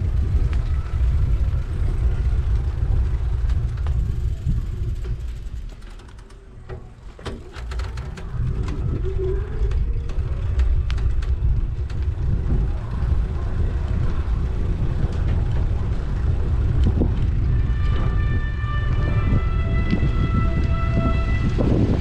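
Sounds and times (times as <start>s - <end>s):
sharp clicks and rattles: 0.0s - 18.2s
road rumble: 0.0s - 22.0s
wind: 0.0s - 22.0s.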